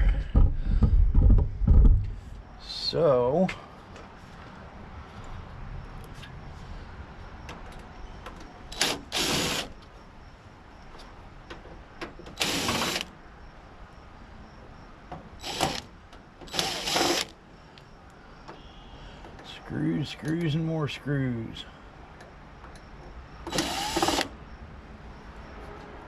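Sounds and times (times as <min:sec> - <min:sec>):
power drill bursts: 0:08.7 - 0:09.7, 0:12.3 - 0:13.1, 0:15.4 - 0:15.9, 0:16.5 - 0:17.4, 0:23.5 - 0:24.4.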